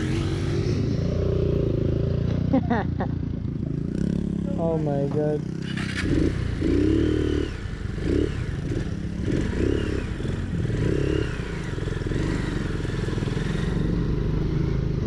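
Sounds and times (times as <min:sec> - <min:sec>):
motorcycle engine revving: 0:00.0 - 0:15.0
person talking: 0:04.5 - 0:05.4.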